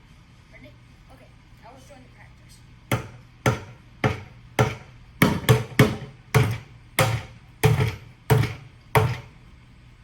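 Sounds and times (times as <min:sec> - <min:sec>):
drumsticks hitting buckets: 0:03.0 - 0:09.3.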